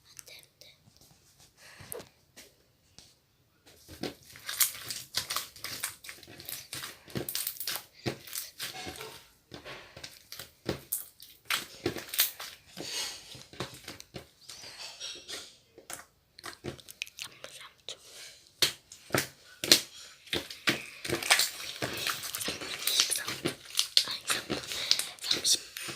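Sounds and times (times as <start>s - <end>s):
slime squished by hand: 18.6s - 25.9s.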